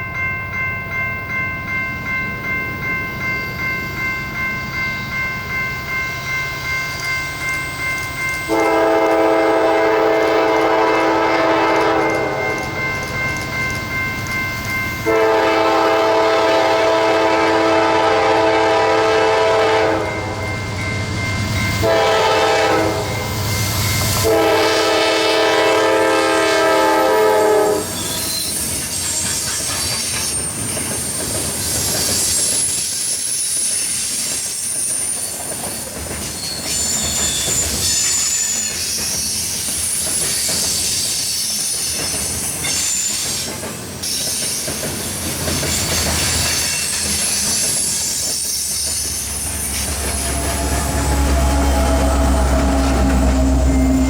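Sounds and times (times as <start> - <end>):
locomotive air horn blasts: 8.5 - 12.5, 15.0 - 20.4, 21.8 - 23.3, 24.2 - 27.9, 50.1 - 54.0
train wheels clicking over rail joints: 28.0 - 54.0
high-pitched wheel squeal: 46.7 - 54.0.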